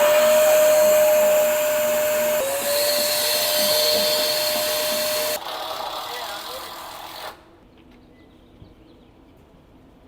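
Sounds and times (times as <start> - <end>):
balloon inflator blower hum: 0.0 - 5.4.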